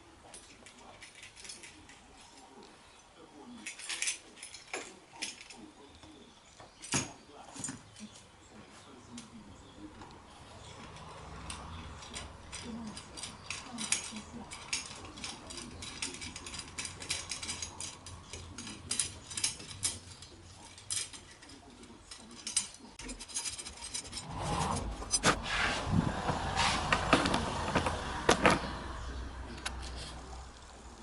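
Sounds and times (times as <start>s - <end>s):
rough mechanical noise: 10.3s - 31.0s.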